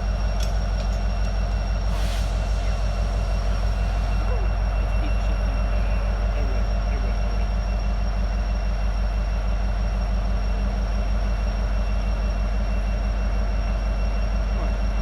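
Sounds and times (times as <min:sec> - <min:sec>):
diesel locomotive idling: 0:00.0 - 0:15.0.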